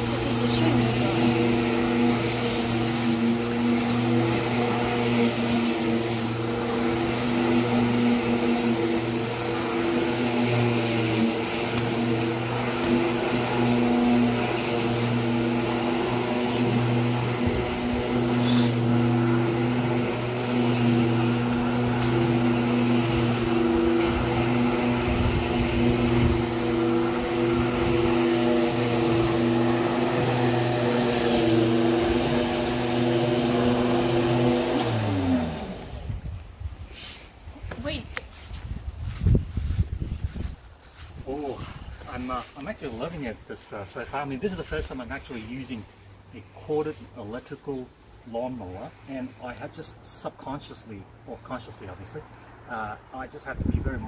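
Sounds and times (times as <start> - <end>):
electric lawn mower cutting grass: 0.0 - 36.5.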